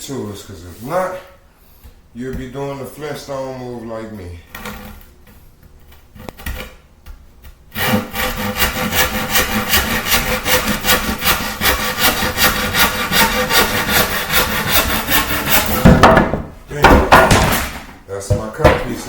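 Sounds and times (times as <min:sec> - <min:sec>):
handsaw cutting: 0:07.7 - 0:16.0.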